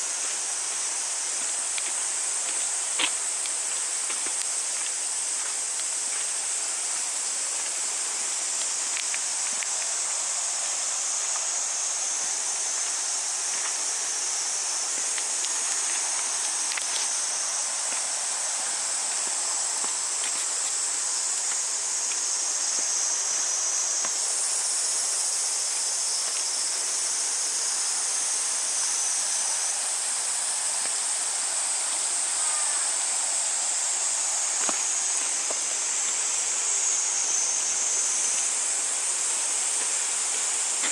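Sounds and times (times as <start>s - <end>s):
ambient outdoor hiss: 0.0s - 40.9s
cicadas buzzing: 0.0s - 40.9s.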